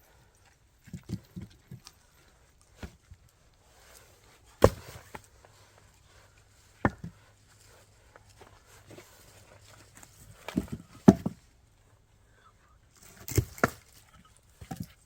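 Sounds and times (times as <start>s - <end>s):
axe splitting firewood: 2.7s - 11.4s, 13.0s - 15.0s.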